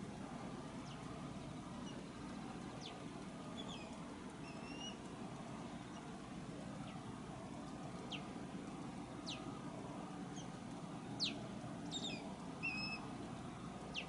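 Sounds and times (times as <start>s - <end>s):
low background rumble: 0.0s - 14.0s
bird chirping: 0.8s - 5.1s, 8.0s - 8.4s, 9.2s - 9.6s, 10.3s - 14.0s.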